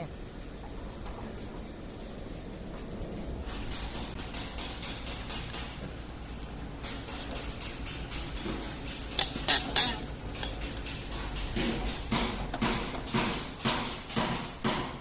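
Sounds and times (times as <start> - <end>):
metal parts clanking: 3.4 - 12.1.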